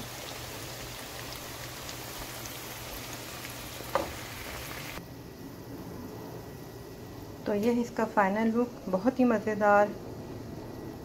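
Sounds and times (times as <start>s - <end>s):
beans sizzling in oil: 0.0s - 5.0s.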